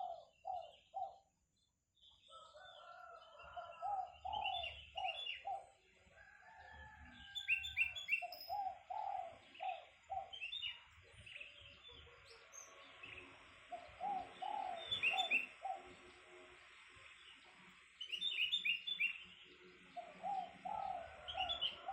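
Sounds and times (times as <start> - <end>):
dove cooing: 0.0 - 1.3, 2.6 - 5.8, 6.5 - 11.1, 13.5 - 16.3, 19.8 - 21.9.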